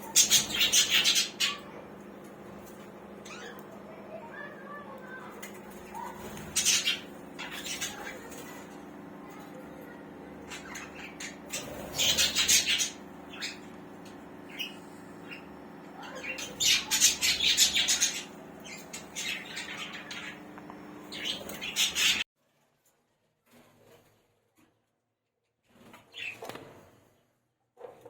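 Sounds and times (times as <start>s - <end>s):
budgerigars chattering and squawking: 0.0s - 1.9s, 2.7s - 4.5s, 5.1s - 8.7s, 9.9s - 13.7s, 14.4s - 22.2s
steady low hum: 0.0s - 22.3s.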